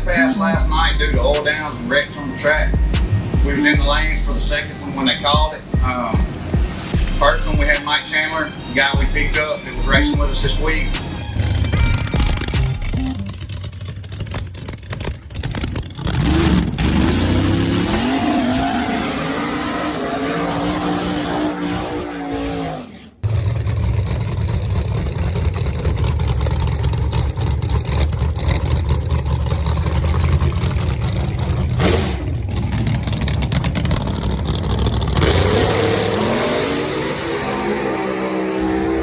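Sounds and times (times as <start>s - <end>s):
race car engine at full throttle: 0.0s - 39.0s.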